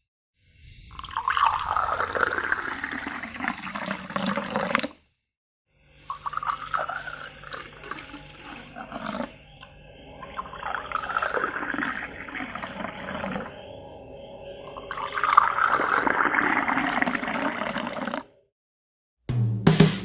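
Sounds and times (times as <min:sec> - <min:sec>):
water pouring into glass: 0:00.9 - 0:05.0, 0:06.0 - 0:13.8, 0:14.5 - 0:18.3.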